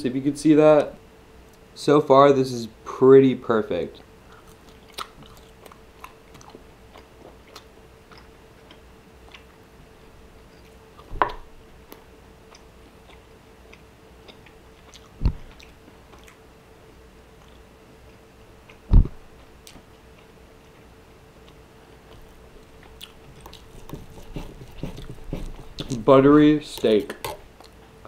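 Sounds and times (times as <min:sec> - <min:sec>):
faint steady hum: 0:00.0 - 0:28.0
man chewing food: 0:04.2 - 0:16.5, 0:17.2 - 0:26.0, 0:27.2 - 0:28.0.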